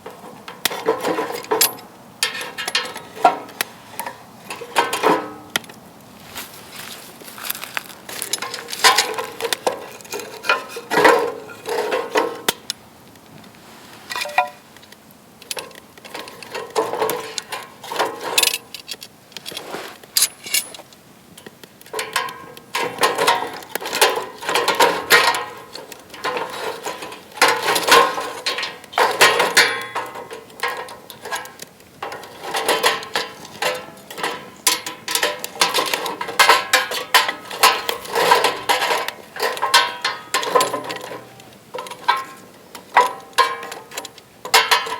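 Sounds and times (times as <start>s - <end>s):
metal parts clinking: 1.1s - 3.2s, 7.2s - 12.1s, 14.1s - 14.6s, 15.5s - 20.8s, 22.0s - 44.9s.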